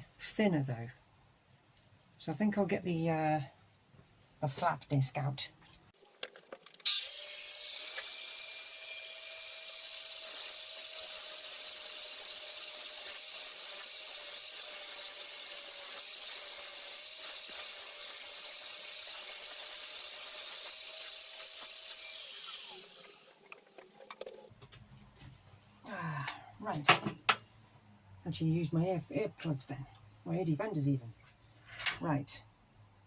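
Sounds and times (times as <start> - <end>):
angle grinder grinding steel: 6.0 - 24.5
grinder disc spinning down: 6.0 - 24.5.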